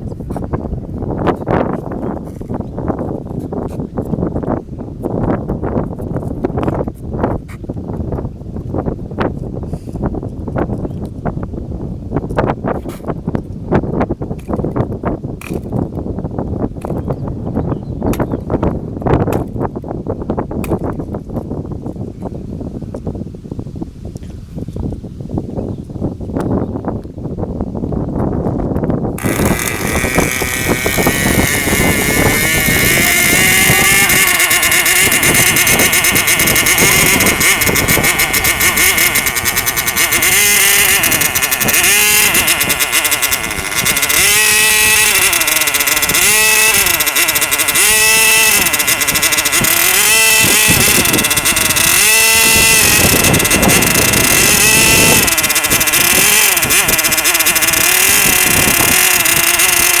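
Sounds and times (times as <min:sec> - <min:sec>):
model airplane engine whining: 0:29.2 - 1:00.0.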